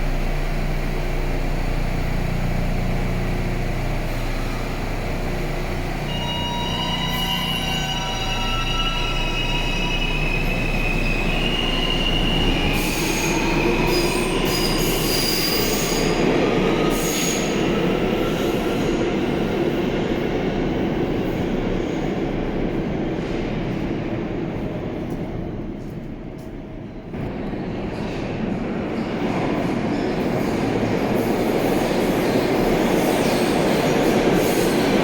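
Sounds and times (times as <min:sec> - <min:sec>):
subway train rumble: 0:00.0 - 0:35.0
wheels squealing: 0:06.0 - 0:17.5.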